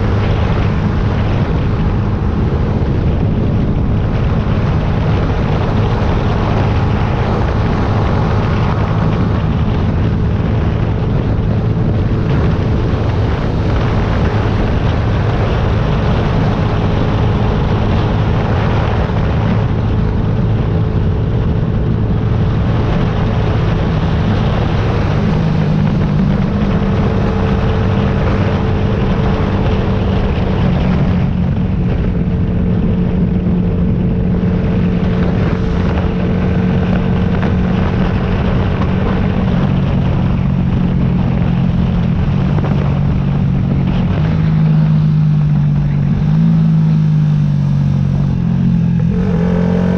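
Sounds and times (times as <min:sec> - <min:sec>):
motorcycle engine running: 0:00.0 - 0:49.9
wind rush: 0:00.0 - 0:49.9.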